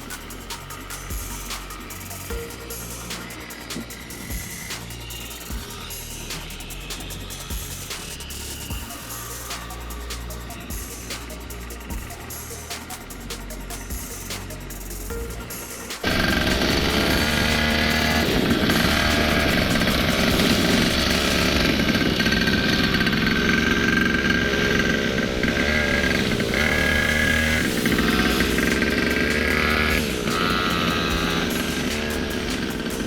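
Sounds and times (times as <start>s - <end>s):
motorcycle engine revving: 16.0s - 33.0s.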